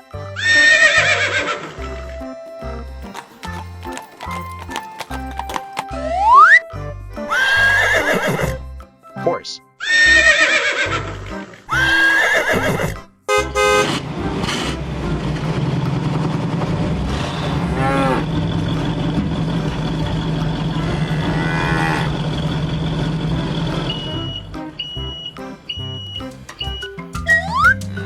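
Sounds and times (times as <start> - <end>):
horse whinny: 0.4 - 2.3, 7.3 - 8.6, 9.8 - 13.1, 20.8 - 22.3
engine-like drone: 13.4 - 26.6.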